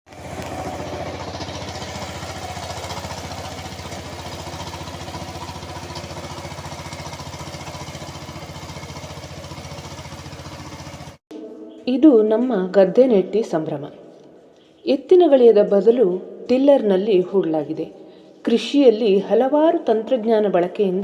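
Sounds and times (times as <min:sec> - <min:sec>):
power tiller engine putter: 0:00.1 - 0:11.2.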